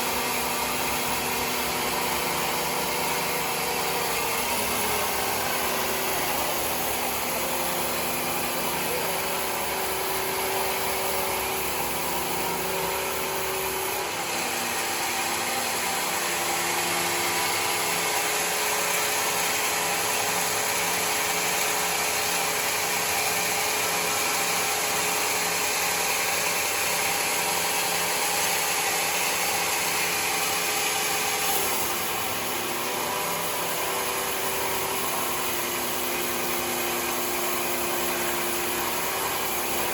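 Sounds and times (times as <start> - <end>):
sawmill engine and blade running: 0.0 - 39.9.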